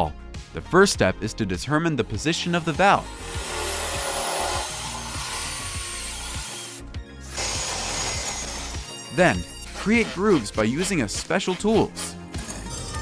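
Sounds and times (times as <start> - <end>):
saw cutting wood: 2.2 - 8.9.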